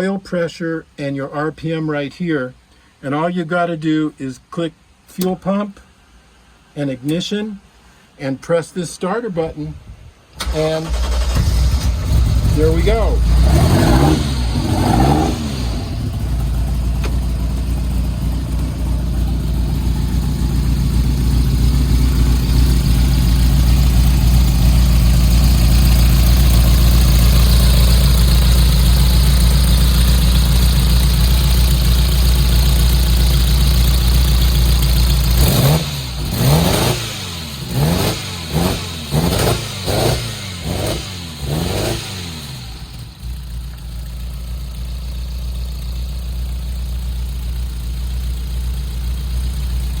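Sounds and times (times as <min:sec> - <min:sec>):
car engine idling: 0:10.8 - 0:50.0
engine revving blips: 0:11.0 - 0:18.6, 0:35.3 - 0:43.1.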